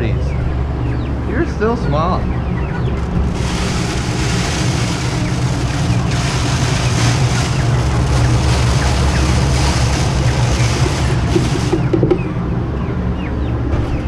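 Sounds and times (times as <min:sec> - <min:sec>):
low hum: 0:00.0 - 0:14.0
chicks peeping: 0:00.1 - 0:14.0
loud rushing noise: 0:03.0 - 0:12.3.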